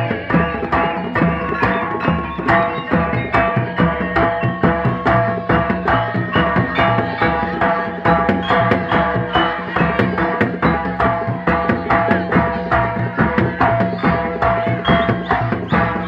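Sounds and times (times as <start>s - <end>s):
ringing metallophone tones: 0.0s - 16.0s.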